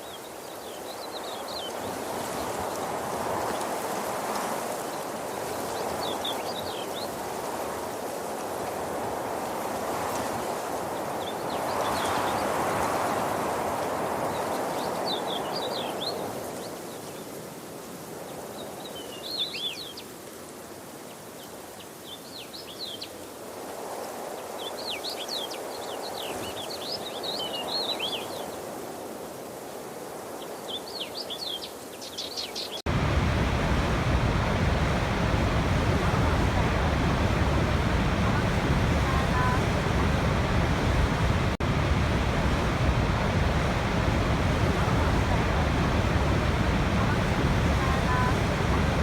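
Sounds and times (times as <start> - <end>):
small birds chirping: 31.3 - 49.0
water rushing: 32.9 - 49.0.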